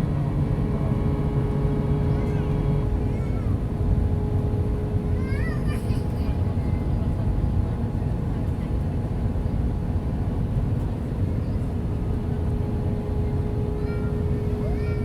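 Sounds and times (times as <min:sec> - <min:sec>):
jet engines rumbling: 0:10.9 - 0:15.0.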